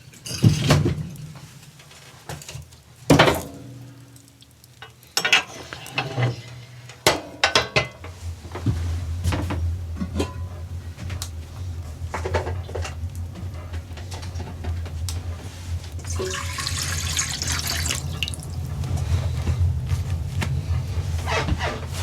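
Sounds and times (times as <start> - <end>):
low rumble: 18.4 - 21.3.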